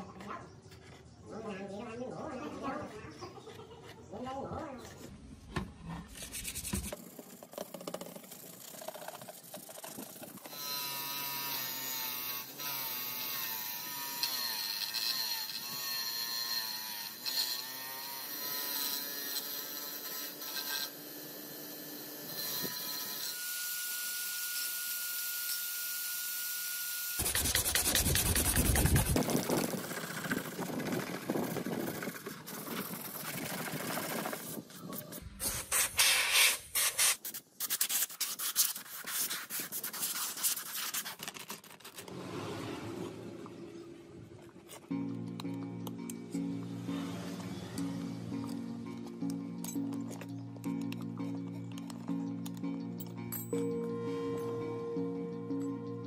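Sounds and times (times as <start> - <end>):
sandpaper rubbing by hand: 6.1 - 10.8, 27.2 - 29.8, 30.8 - 42.1
bench grinder motor whine: 10.4 - 31.4.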